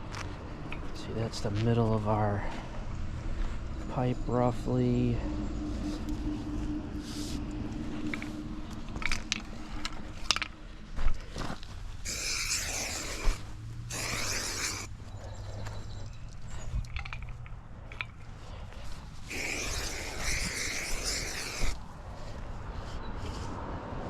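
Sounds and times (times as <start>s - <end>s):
idling machinery hum: 2.2s - 12.0s
spray paint can hissing: 12.1s - 14.9s, 19.3s - 21.8s.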